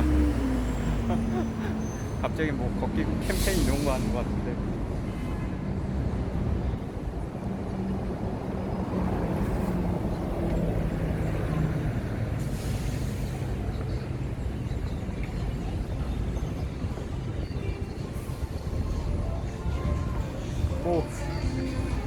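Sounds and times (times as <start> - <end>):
heavy vehicle engine rumbling: 0.0 - 22.0
air brakes hissing: 3.2 - 4.3, 12.4 - 13.8.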